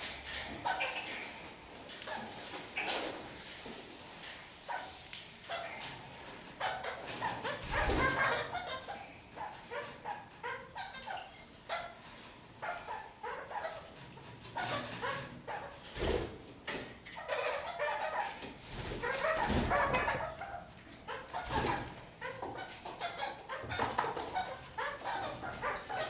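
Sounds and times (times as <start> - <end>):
parakeets chattering: 0.0 - 3.4, 4.6 - 26.0.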